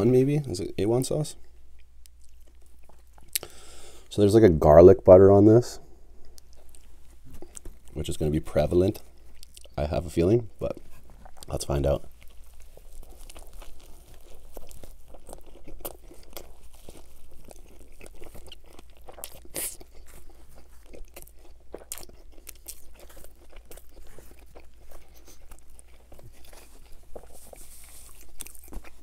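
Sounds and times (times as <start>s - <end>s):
chewing a sandwich: 1.4s - 4.1s, 6.1s - 29.0s
wet sticky mouth sounds: 1.8s - 3.5s, 10.7s - 28.7s.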